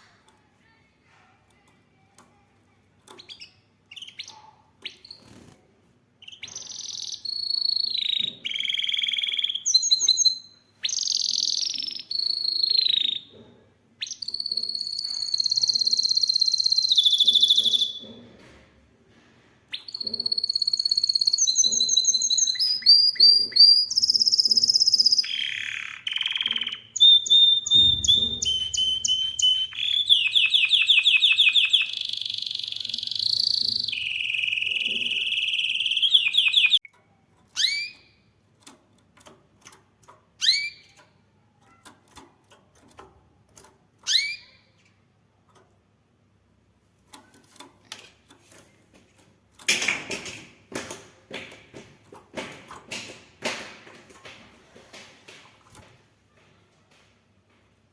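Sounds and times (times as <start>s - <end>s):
canary singing trills and whistles: 3.1s - 5.5s, 6.2s - 13.3s, 14.0s - 18.0s, 19.7s - 38.3s, 40.4s - 42.0s, 44.0s - 44.8s.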